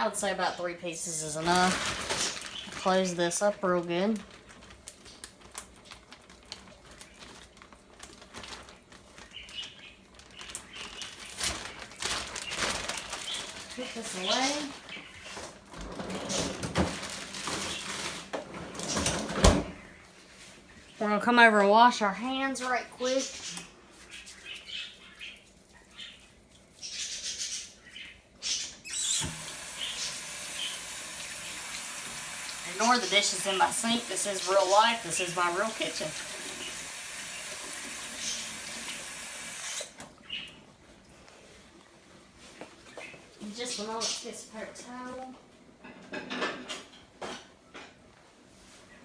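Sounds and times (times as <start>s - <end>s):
water running into sink: 28.9s - 40.0s.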